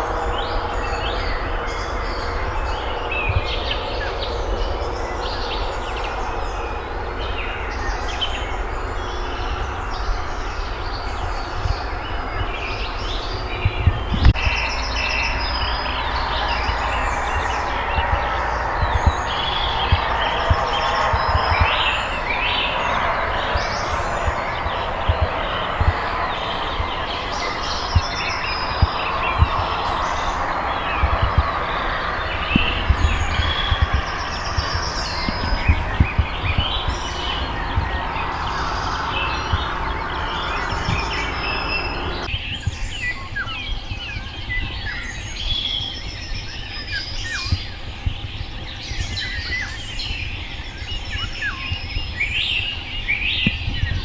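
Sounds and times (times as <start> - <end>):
rushing noise: 0.0 - 42.4
low rumble: 0.0 - 54.0
songbirds chirping and trilling: 0.0 - 54.0.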